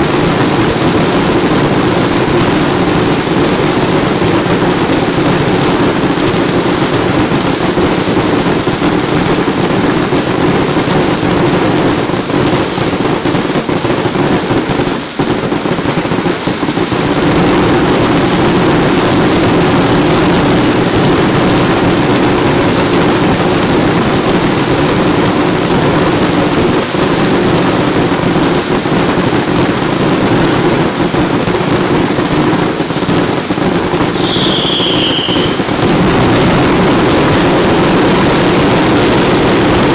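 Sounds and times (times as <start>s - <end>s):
fireworks and firecrackers barrage: 0.0s - 39.9s
falling whistle: 34.2s - 35.7s.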